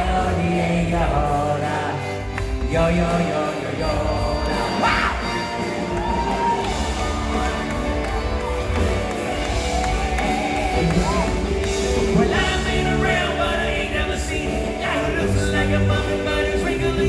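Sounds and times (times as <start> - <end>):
live rock band playing: 0.0 - 17.0
person singing: 10.2 - 17.0.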